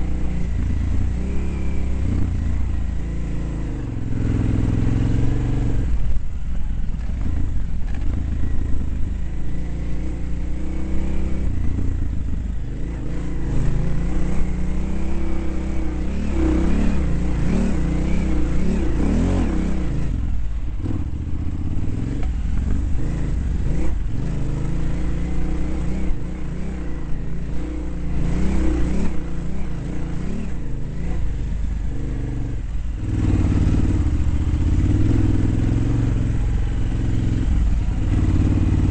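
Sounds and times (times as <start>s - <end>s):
dirt bike engine revving: 12.7s - 38.9s.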